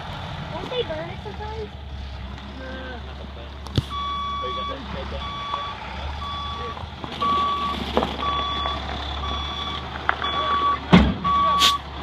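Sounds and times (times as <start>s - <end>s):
diesel engine hum: 0.0s - 12.0s
truck reversing alarm beeping: 3.9s - 11.9s.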